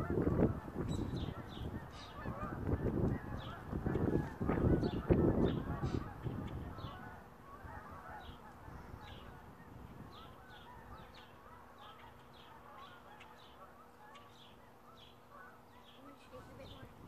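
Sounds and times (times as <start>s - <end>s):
bird honking: 0.0s - 17.0s
bird chirps: 0.8s - 2.2s, 10.0s - 17.0s.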